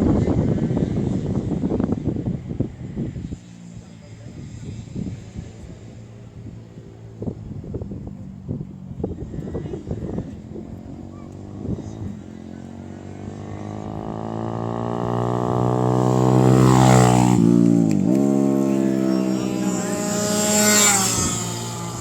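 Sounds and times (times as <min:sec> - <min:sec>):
racing motorcycle engine passing: 0:00.0 - 0:22.0.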